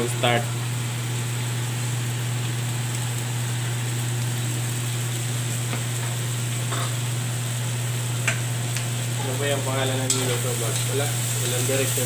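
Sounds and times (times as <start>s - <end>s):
food sizzling in a wok: 0.0s - 12.0s
gas burner low hum: 0.0s - 12.0s.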